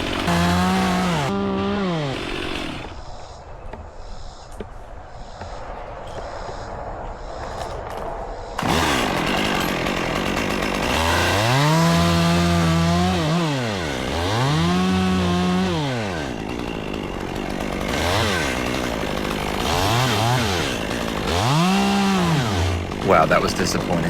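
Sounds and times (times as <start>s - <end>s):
chainsaw revving: 0.0s - 3.0s, 8.6s - 24.0s.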